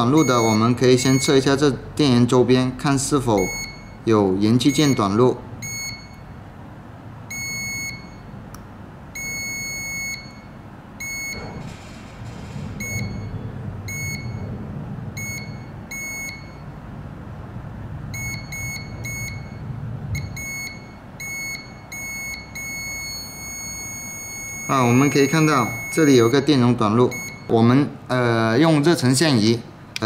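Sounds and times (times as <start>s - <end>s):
multimeter beeping: 0.0s - 1.6s, 3.3s - 6.4s, 7.3s - 8.4s, 9.2s - 11.6s, 12.8s - 14.5s, 15.2s - 16.8s, 18.1s - 19.6s, 20.2s - 27.6s.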